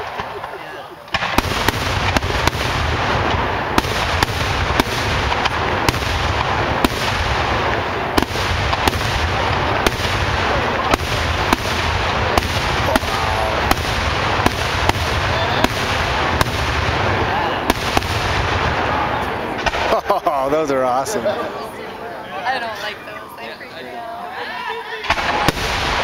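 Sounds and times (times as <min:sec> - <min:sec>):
fireworks banging: 0:00.0 - 0:21.8, 0:25.0 - 0:26.0.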